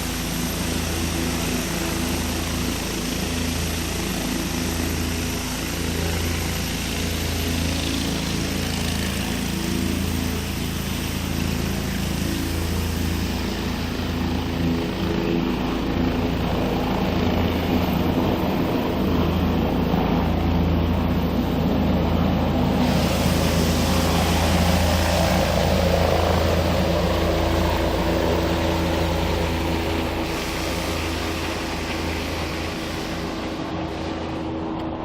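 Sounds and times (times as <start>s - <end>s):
helicopter engine and rotor drone: 0.0s - 35.0s
hiss: 22.7s - 33.7s.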